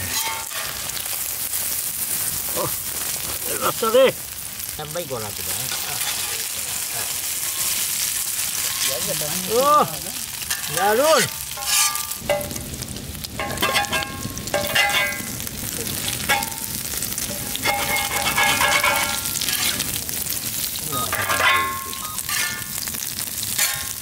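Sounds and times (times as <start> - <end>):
metal spatula scraping pan: 0.0 - 1.0, 5.7 - 9.2, 10.3 - 12.6, 17.3 - 20.0, 21.0 - 24.0
eggs sizzling in hot oil: 0.0 - 24.0.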